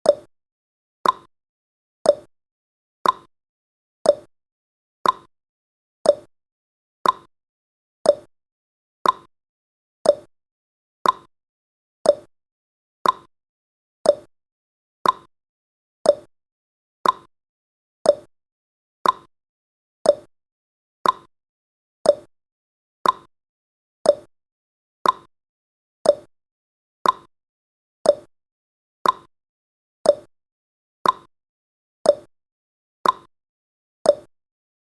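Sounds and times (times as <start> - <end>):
timer ticking tick-tock: 0.0 - 0.3, 1.0 - 1.3, 2.0 - 2.3, 3.0 - 3.3, 4.0 - 4.3, 5.0 - 5.3, 6.0 - 6.3, 7.0 - 7.3, 8.0 - 8.3, 9.0 - 9.3, 10.0 - 10.3, 11.0 - 11.3, 12.0 - 12.3, 13.0 - 13.3, 14.0 - 14.3, 15.0 - 15.3, 16.0 - 16.3, 17.0 - 17.3, 18.0 - 18.3, 19.0 - 19.3, 20.0 - 20.3, 21.0 - 21.3, 22.0 - 22.3, 23.0 - 23.3, 24.0 - 24.3, 25.0 - 25.3, 26.0 - 26.3, 27.0 - 27.3, 28.0 - 28.3, 29.0 - 29.3, 30.0 - 30.3, 31.0 - 31.3, 32.0 - 32.3, 33.0 - 33.3, 34.0 - 34.3.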